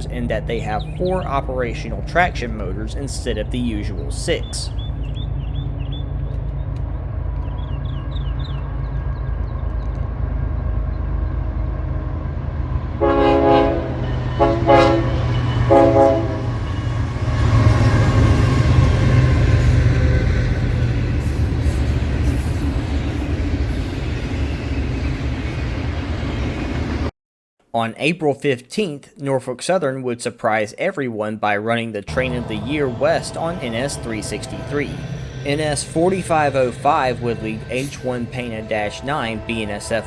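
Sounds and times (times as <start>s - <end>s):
freight train rumbling: 0.0s - 27.1s, 32.1s - 40.0s
train wheel noise: 0.0s - 27.1s, 32.1s - 40.0s
locomotive air horn blasts: 12.9s - 20.2s, 32.1s - 40.0s.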